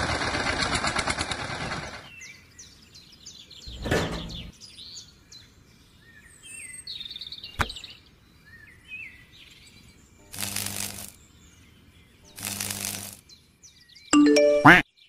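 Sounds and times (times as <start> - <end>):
small birds chirping: 2.0 - 15.0.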